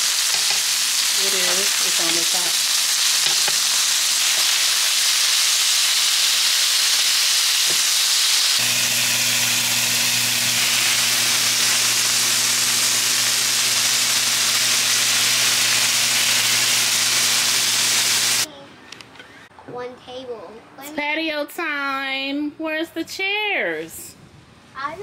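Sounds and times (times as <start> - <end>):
food sizzling in a pan: 0.0 - 18.5.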